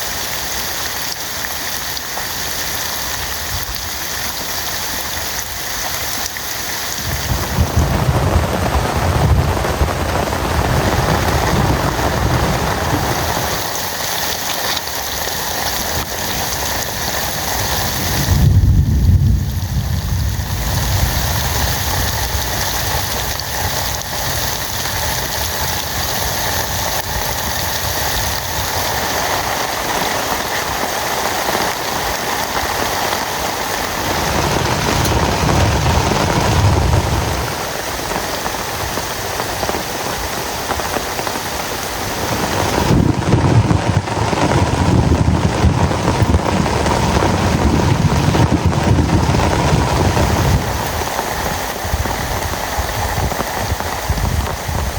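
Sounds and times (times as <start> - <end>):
heavy rain pouring: 0.0 - 54.9
low rumble: 7.0 - 13.6, 18.0 - 23.4.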